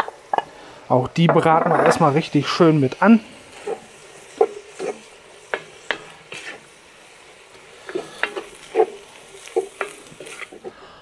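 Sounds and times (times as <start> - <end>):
meat and onions sizzling: 0.0 - 11.0
wooden spatula scraping a pot: 3.5 - 6.7, 7.3 - 10.8.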